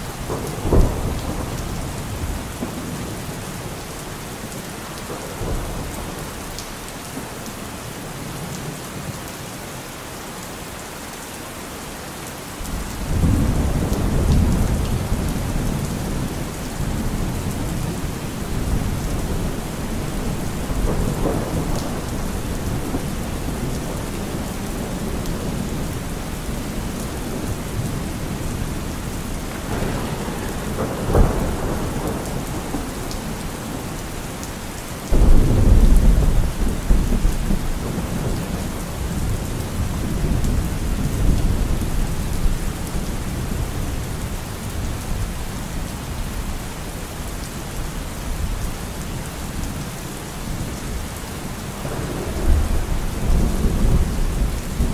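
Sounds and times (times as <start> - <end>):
thunder clap rumbling: 0.0 - 3.7, 12.7 - 44.2, 51.8 - 54.9
steady rain: 0.0 - 54.9.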